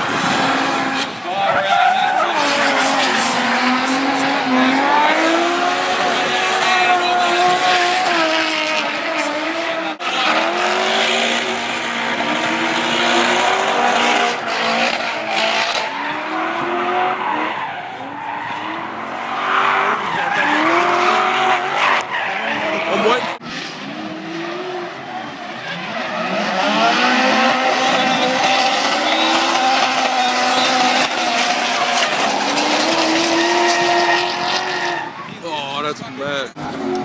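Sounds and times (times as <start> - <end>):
car engines revving hard: 0.0 - 37.0
tyres squealing: 0.4 - 4.8, 27.6 - 35.2.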